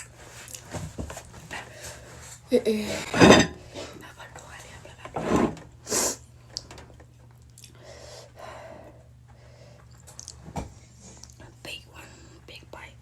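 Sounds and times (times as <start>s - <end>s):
steady low hum: 0.0s - 13.0s
person breathing and eating: 7.6s - 11.4s.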